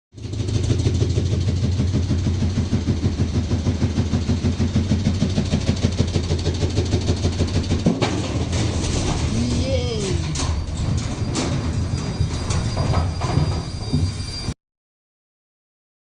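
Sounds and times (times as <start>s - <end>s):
washing machine running: 0.2s - 13.8s
rhythmic thumping of machine: 1.8s - 8.6s.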